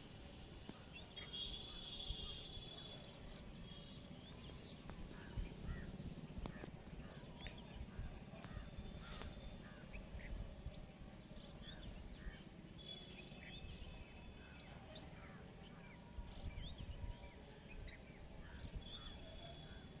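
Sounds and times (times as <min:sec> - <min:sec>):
birds chirping and calling: 0:00.4 - 0:20.0
steady low rumble: 0:02.7 - 0:12.8.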